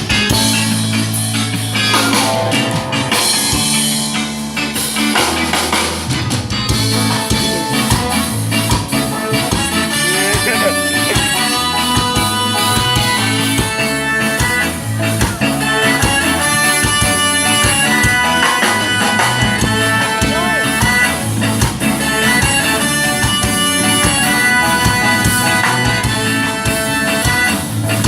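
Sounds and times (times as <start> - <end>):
drum kit beat: 0.0 - 28.0
ska band playing: 0.0 - 28.0.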